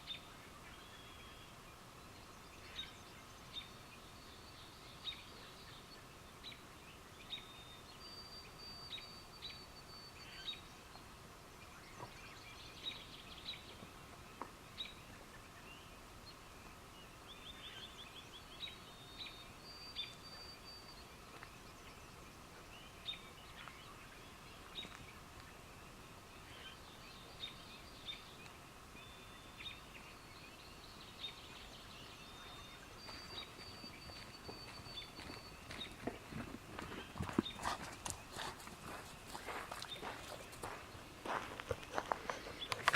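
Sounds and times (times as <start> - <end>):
high chirps and peeps: 29.1 - 42.9.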